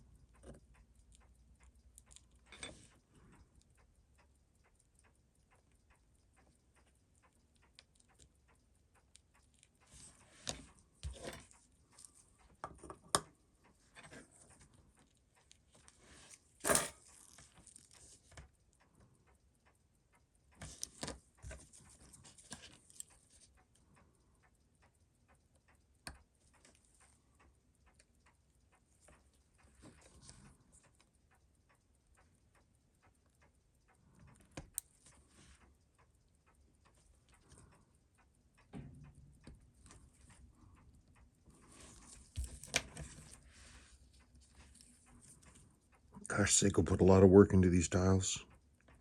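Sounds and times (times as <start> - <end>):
watchmaking tools clicking and tapping: 0.0 - 4.3, 5.0 - 18.6
faint regular ticking: 0.0 - 49.0.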